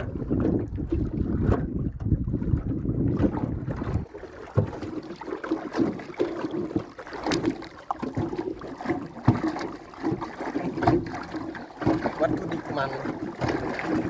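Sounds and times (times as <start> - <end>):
wind rumbling on microphone: 0.0 - 4.9.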